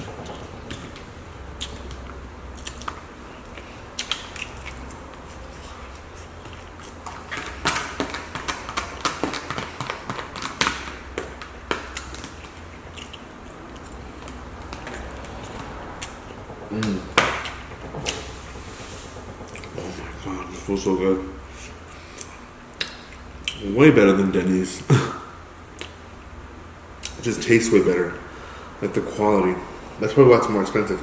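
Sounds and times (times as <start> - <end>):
chewing and lip-smacking: 0.0 - 18.3, 19.4 - 20.2, 21.6 - 23.6, 25.7 - 26.1, 27.0 - 27.2.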